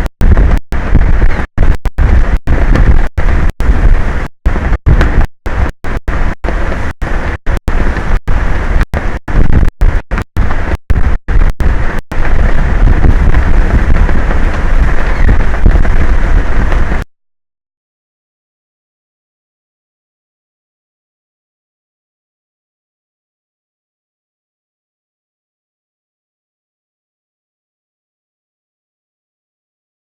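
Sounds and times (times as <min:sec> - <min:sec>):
strong wind buffeting microphone: 0:00.0 - 0:17.1.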